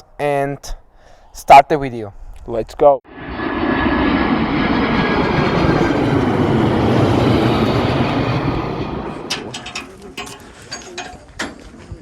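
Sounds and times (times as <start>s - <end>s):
heavy vehicle engine rumble: 4.0s - 11.2s.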